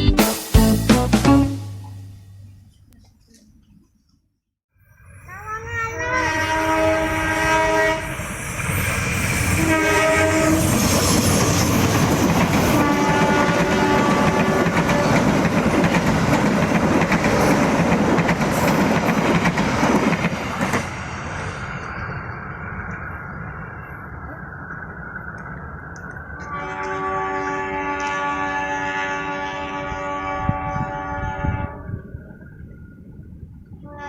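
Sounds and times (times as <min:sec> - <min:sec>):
locomotive horn blasts: 0:06.0 - 0:08.1, 0:09.6 - 0:10.7, 0:12.8 - 0:15.4, 0:26.4 - 0:32.1, 0:33.8 - 0:34.0
train wheels clattering over rail joints: 0:10.8 - 0:21.0.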